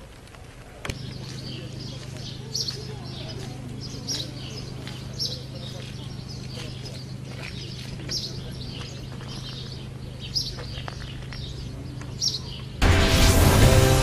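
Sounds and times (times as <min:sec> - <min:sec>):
small birds chirping: 0:00.0 - 0:12.8
held synth chords: 0:12.8 - 0:14.0
logo jingle with whoosh: 0:12.8 - 0:14.0.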